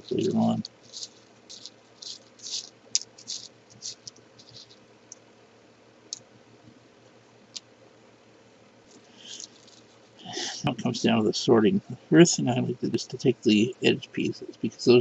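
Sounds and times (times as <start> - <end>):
puzzle pieces clicking and scraping: 0.0 - 4.8.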